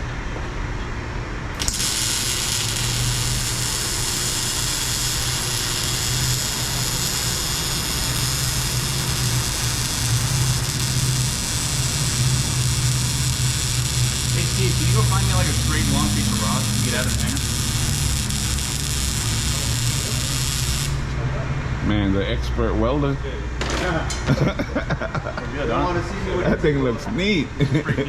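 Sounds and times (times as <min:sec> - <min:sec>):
steady low hum: 0:00.0 - 0:23.6
welding arc hissing and crackling: 0:01.6 - 0:21.1.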